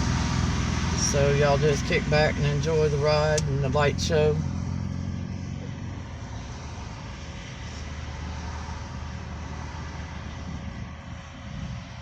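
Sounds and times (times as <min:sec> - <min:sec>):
car driving rumble from cabin: 0:00.0 - 0:12.0.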